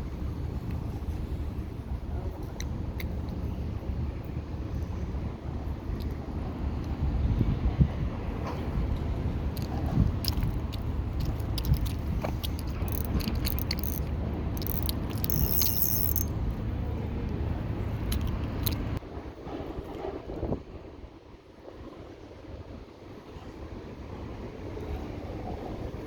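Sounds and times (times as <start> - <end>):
wind rumble on microphone: 0.0 - 26.0
microphone handling clicks and rattles: 9.5 - 16.3.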